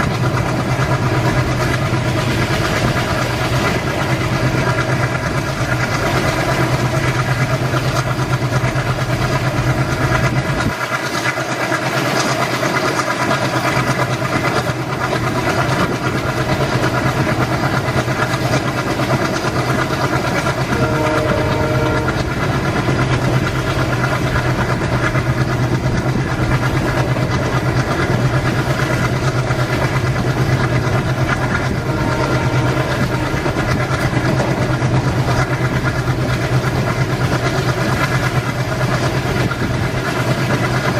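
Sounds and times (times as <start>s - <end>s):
locomotive droning: 0.0s - 40.9s
locomotive horn: 20.4s - 23.0s, 31.3s - 35.5s.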